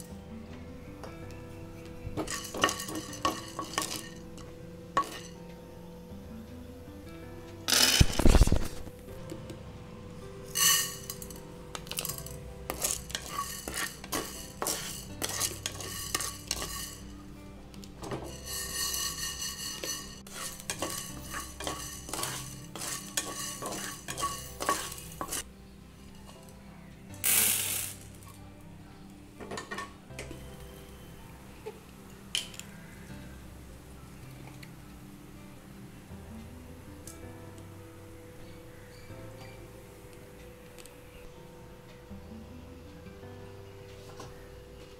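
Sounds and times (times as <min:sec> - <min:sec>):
lentils clattering into pan: 0:02.2 - 0:05.4, 0:07.7 - 0:08.9, 0:10.5 - 0:17.1, 0:18.0 - 0:25.4, 0:27.2 - 0:28.1
spoon scraping metal pan: 0:02.2 - 0:05.4, 0:10.5 - 0:17.1, 0:18.2 - 0:25.4.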